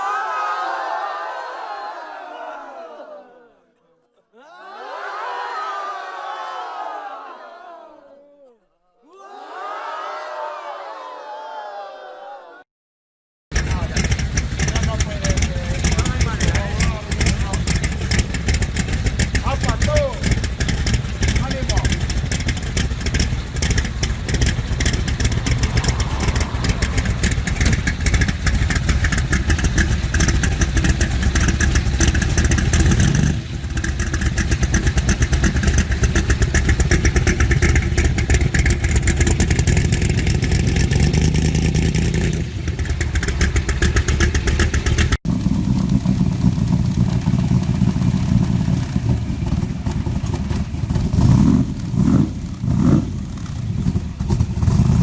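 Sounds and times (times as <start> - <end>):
engine revving: 13.5 - 55.0
car engine running hard: 13.6 - 55.0.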